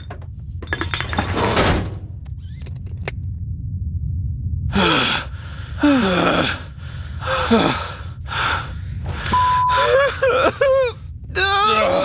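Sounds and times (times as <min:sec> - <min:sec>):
low rumble: 0:00.0 - 0:12.0
person gasping sighs: 0:04.7 - 0:08.9
short beep: 0:09.3 - 0:09.8.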